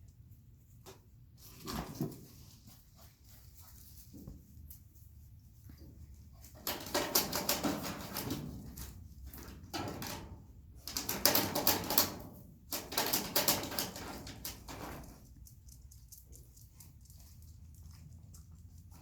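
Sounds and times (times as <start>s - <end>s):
claws clicking and scratching: 12.7s - 19.0s.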